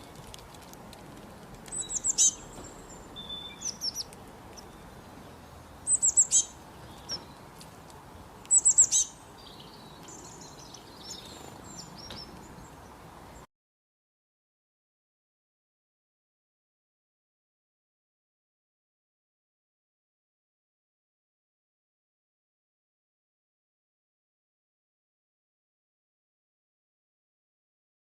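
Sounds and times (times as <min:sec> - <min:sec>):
outdoor background hiss: 0:00.0 - 0:13.5
songbirds chirping: 0:00.0 - 0:13.5.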